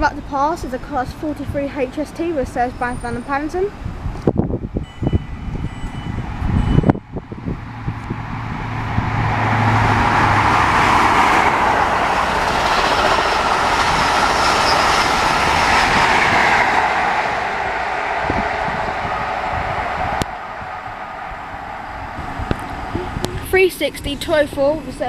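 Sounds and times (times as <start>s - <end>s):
diesel train passing at speed: 0.0s - 25.0s
low thumps: 17.7s - 23.8s.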